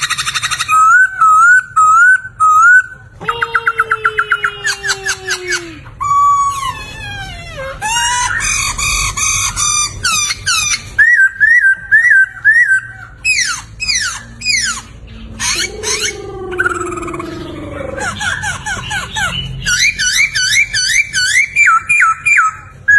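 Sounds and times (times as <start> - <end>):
laughingthrush whistled song: 10.2 - 14.8
faint low hum: 11.6 - 22.9.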